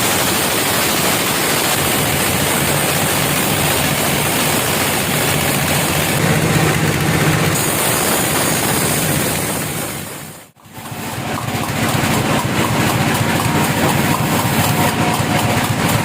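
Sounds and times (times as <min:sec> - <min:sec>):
heavy engine running: 0:00.0 - 0:16.0.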